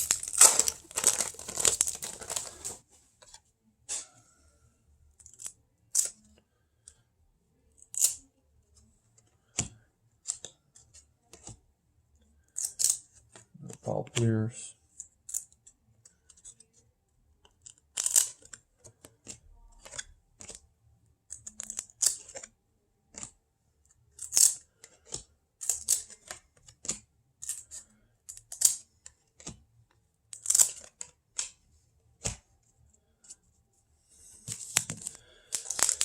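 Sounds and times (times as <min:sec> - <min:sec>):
cards sliding off a stack: 0:00.0 - 0:02.8
papery rustle: 0:00.0 - 0:02.8.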